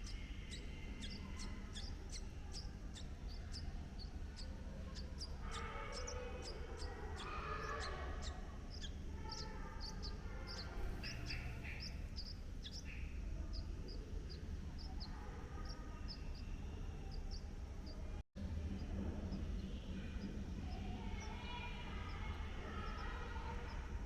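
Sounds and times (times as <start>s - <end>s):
lower bird calls: 0.0s - 18.0s
bird chirping: 0.0s - 24.0s
low background rumble: 0.0s - 24.0s.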